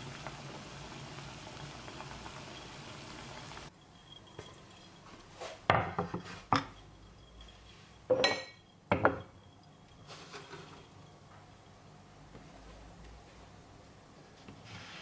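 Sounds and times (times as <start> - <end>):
dishes and utensils clattering: 5.6 - 11.1.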